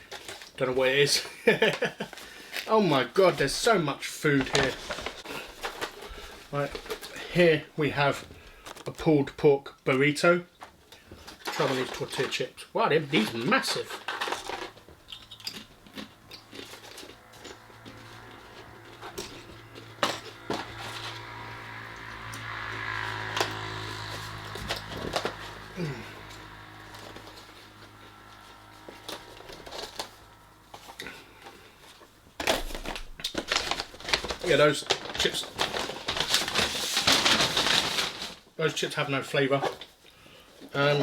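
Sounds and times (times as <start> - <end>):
low steady hum: 10.9 - 37.5.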